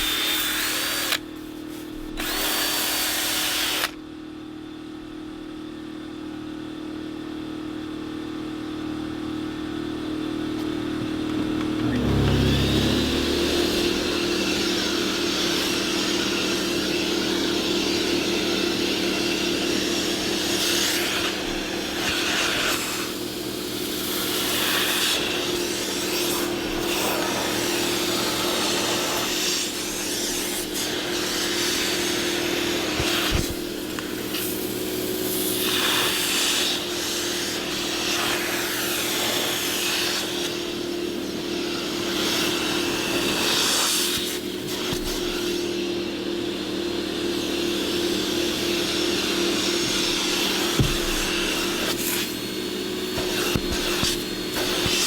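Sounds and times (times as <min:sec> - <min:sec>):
electric motor running: 0:11.7 - 0:15.2.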